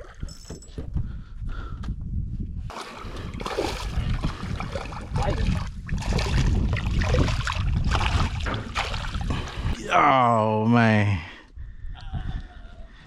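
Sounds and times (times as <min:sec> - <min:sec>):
water splashing around boat: 0:02.7 - 0:09.8.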